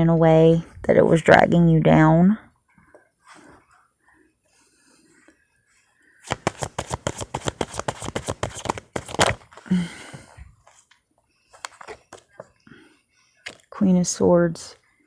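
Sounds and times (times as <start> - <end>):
deck of cards rustling: 6.2 - 9.7, 11.6 - 12.4
cards being shuffled: 6.3 - 9.7.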